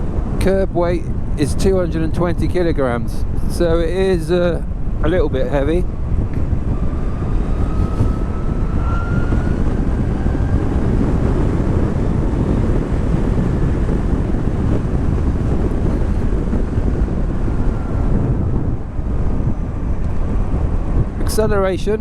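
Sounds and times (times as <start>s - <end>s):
wind rushing over microphone: 0.0s - 22.0s
electric motor whine: 6.4s - 14.2s.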